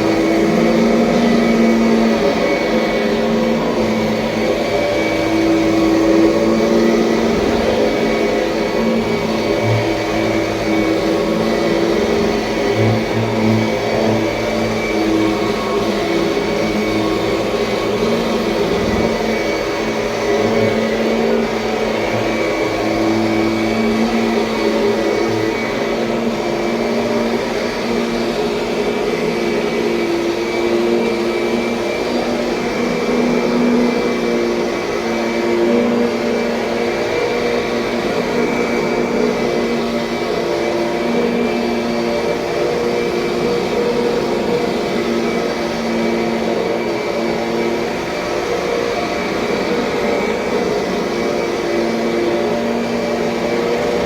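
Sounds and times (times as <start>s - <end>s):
upright vacuum cleaner running: 0.0s - 54.0s.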